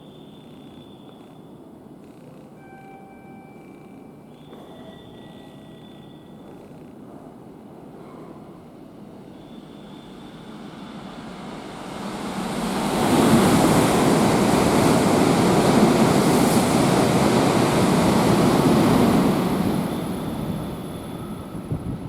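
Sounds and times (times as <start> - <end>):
high-speed train passing: 7.2 - 22.0.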